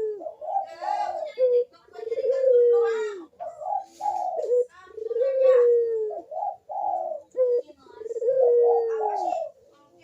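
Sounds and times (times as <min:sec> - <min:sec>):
dove cooing: 0:00.0 - 0:09.7.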